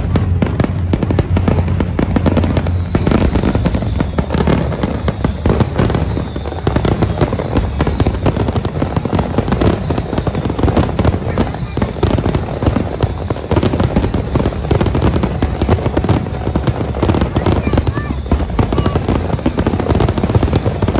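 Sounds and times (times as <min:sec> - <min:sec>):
deep low rumble: 0:00.0 - 0:12.7
fireworks bangs and crackling: 0:00.0 - 0:20.9.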